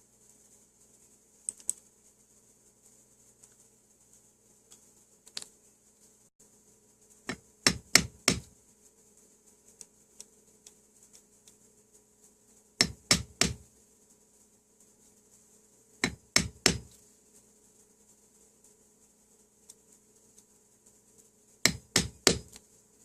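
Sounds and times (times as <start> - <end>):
hammer strikes: 7.3 - 8.5, 12.8 - 13.7, 16.0 - 17.0, 21.7 - 22.6.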